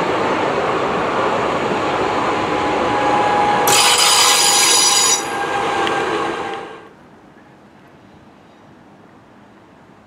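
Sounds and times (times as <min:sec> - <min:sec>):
train wheels rumbling on rails: 0:00.0 - 0:06.9
metallic wheel squeal: 0:03.6 - 0:05.8.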